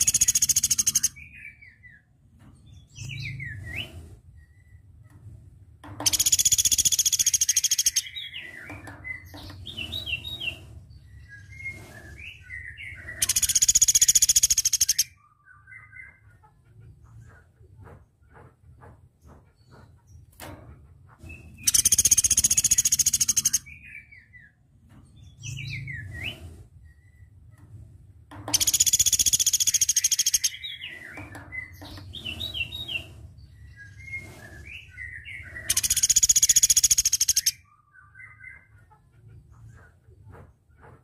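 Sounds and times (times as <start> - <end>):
bird rapid trills: 0.0 - 1.1, 6.0 - 8.6, 13.1 - 15.1, 21.6 - 23.6, 28.5 - 33.0, 33.8 - 37.6.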